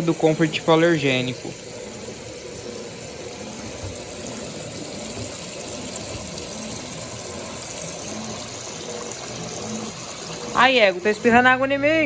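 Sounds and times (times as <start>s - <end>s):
water gushing in washing machine: 0.0s - 12.0s.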